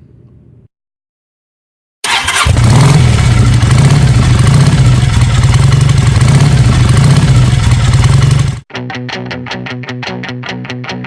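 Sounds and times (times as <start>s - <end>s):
motorcycle engine starting and idling: 2.0s - 8.6s.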